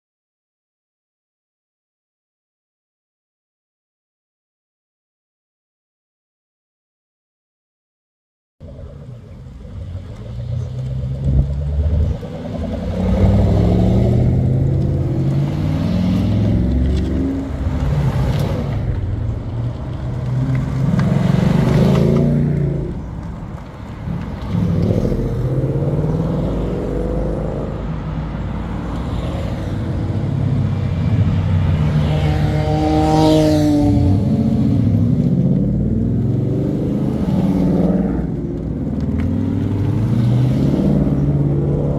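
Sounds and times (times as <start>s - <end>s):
car engines revving past: 8.6s - 41.9s.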